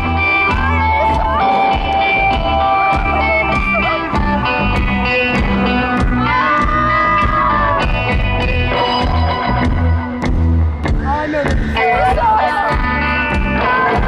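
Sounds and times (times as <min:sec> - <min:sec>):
rock band playing live: 0:00.0 - 0:14.0.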